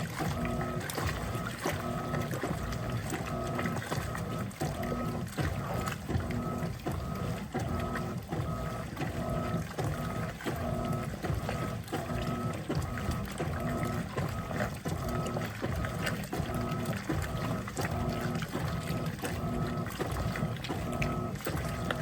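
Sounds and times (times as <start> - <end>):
washing machine motor humming: 0.0 - 22.0
water sloshing: 0.0 - 22.0.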